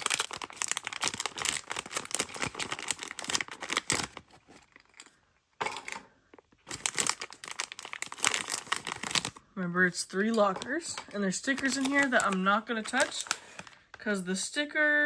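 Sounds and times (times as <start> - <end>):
gift packaging crinkling and tearing: 0.0 - 9.4, 11.5 - 14.0
packaging rustle: 0.0 - 9.4, 11.6 - 14.0.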